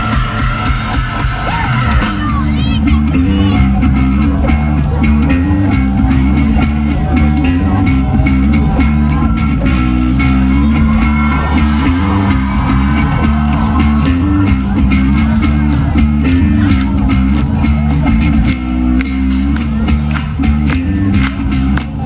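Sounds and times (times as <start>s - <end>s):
bass guitar line: 0.0s - 22.0s
drum kit hits: 19.2s - 22.0s.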